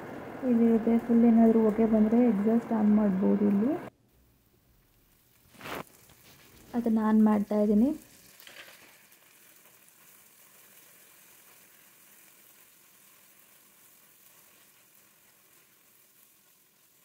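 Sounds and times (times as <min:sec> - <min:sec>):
onions frying in hot oil: 0:00.0 - 0:17.0.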